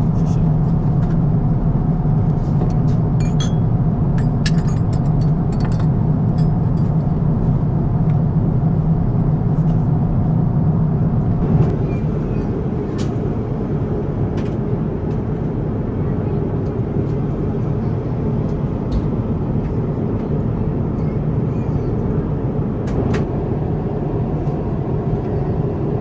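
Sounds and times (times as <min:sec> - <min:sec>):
airplane cabin engine roar: 0:00.0 - 0:26.0.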